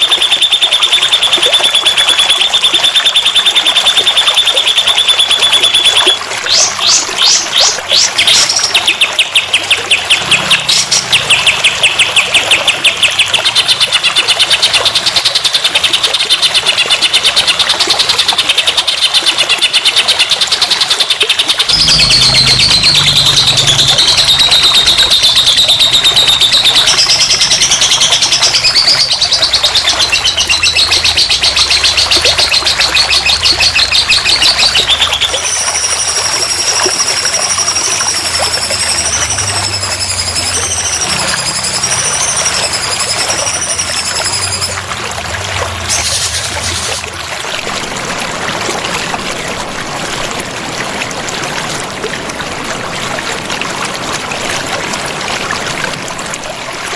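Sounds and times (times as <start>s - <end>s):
recorded songbird chirping trills: 0.0s - 45.1s.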